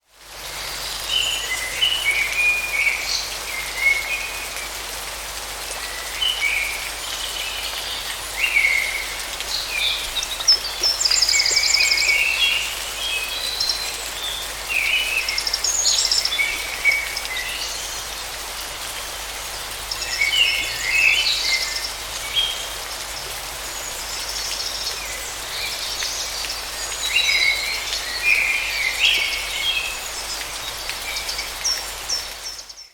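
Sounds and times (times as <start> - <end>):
forest stream running: 0.0 - 32.9
birds singing and calling: 5.7 - 18.4, 19.5 - 32.9.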